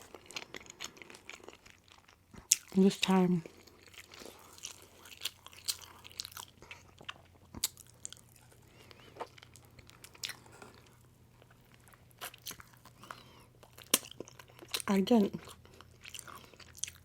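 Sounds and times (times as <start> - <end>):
faint low hum: 0.0 - 17.0
chewing with wet mouth clicks: 3.5 - 17.0.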